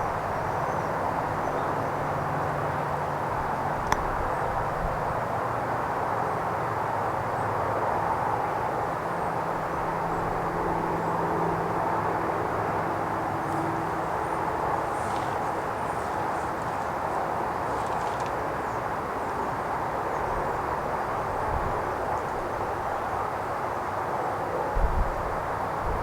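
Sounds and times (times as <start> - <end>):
distant engine drone: 0.0 - 26.0
faint constant hum: 0.0 - 26.0.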